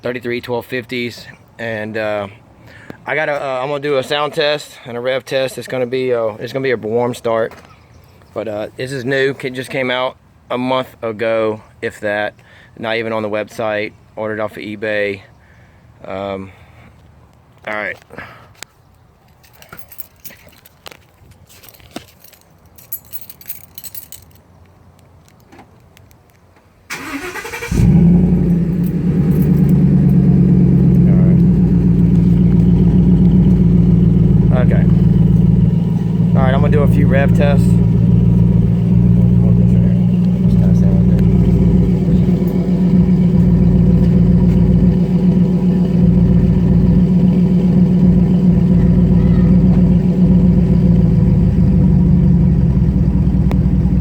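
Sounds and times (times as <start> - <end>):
faint clicks and rustles: 17.0 - 26.7
truck engine cranking and starting: 26.9 - 54.0
loud engine idling: 27.7 - 54.0.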